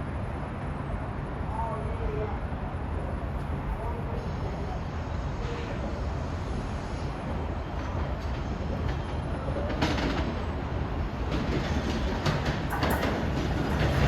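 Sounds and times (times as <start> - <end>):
train rumbling: 0.0 - 14.0
wheels clicking on rails: 11.1 - 14.0.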